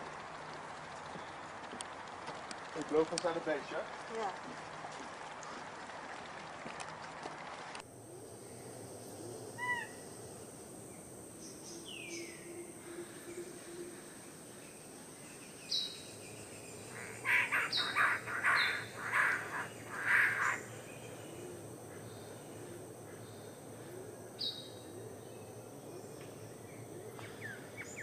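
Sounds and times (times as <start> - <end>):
birds chirping: 11.4 - 23.6
harsh rasping bird calls: 16.9 - 20.8.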